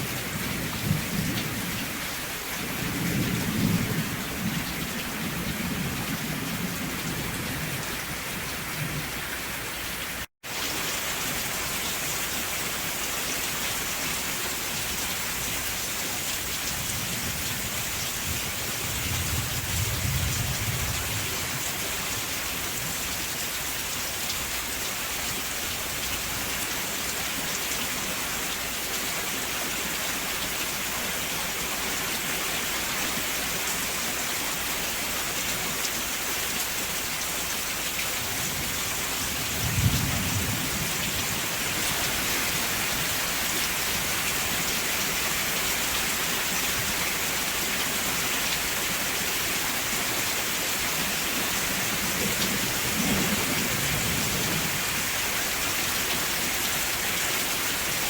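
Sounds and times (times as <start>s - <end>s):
steady rainfall: 0.0s - 58.0s
thunder rumbling: 16.8s - 21.6s, 38.5s - 41.4s, 51.8s - 55.0s.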